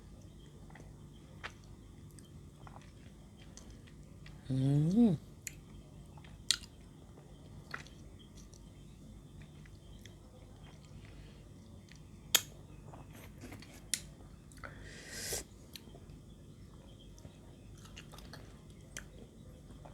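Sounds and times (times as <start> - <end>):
person chewing: 0.7 - 5.1.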